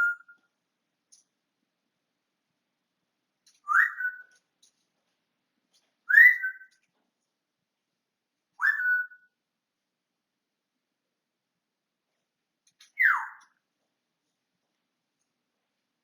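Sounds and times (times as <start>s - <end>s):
parrot whistling: 3.7s - 4.2s, 6.1s - 6.6s, 8.6s - 9.2s, 13.0s - 13.4s.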